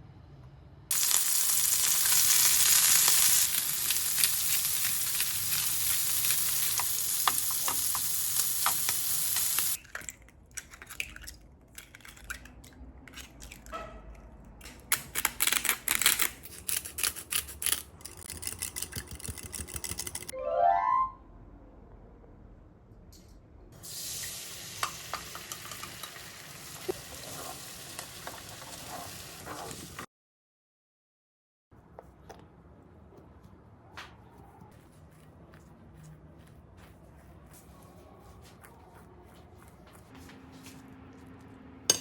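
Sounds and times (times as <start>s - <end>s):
food sizzling in a pan: 0.9s - 9.8s, 23.8s - 30.0s.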